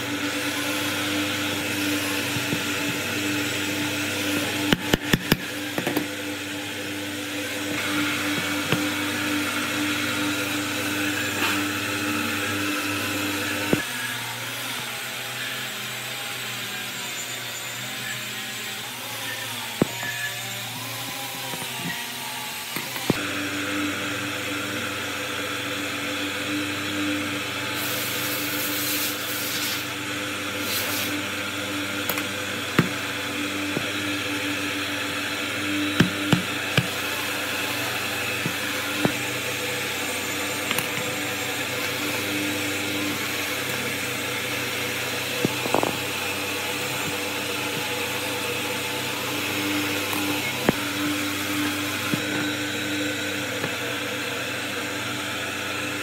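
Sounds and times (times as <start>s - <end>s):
electric motor humming: 0.0s - 56.0s.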